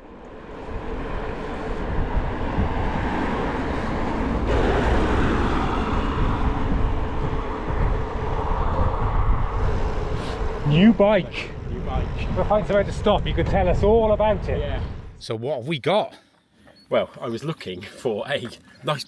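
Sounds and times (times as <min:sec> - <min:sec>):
road noise: 0:00.0 - 0:19.0
wind buffeting microphone: 0:00.3 - 0:15.2.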